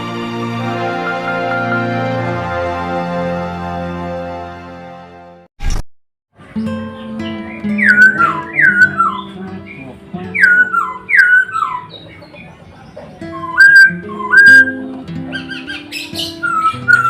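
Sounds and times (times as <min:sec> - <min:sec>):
calm instrumental music: 0:00.0 - 0:05.5, 0:06.4 - 0:17.0
bird whistles: 0:07.0 - 0:17.0.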